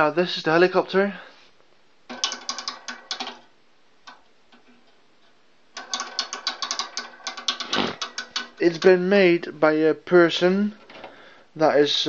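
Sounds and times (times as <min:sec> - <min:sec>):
metal model ratchet clicking: 0:05.8 - 0:09.0.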